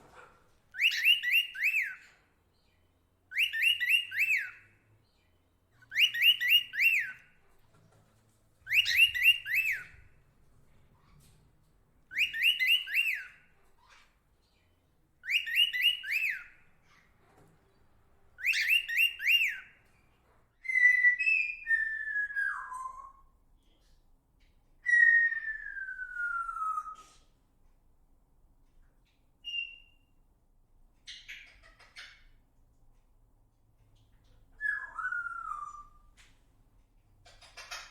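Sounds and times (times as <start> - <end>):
bird whistling short phrases: 0.8 - 2.1, 8.7 - 9.9, 12.1 - 13.4, 18.4 - 19.7, 24.8 - 27.2.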